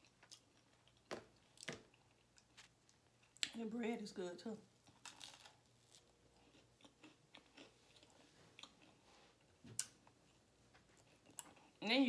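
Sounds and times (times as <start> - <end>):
chewing bread: 0.0 - 3.6, 4.8 - 11.9.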